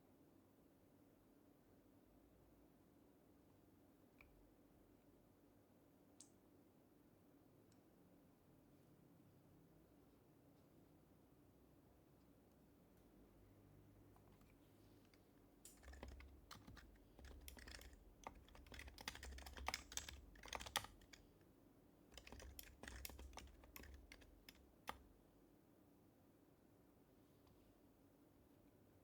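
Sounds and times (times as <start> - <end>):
quiet keyboard typing: 14.1 - 21.5, 22.1 - 25.2.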